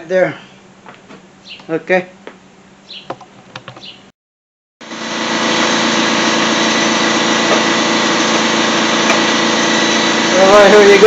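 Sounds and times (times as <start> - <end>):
machine humming: 4.8 - 11.0.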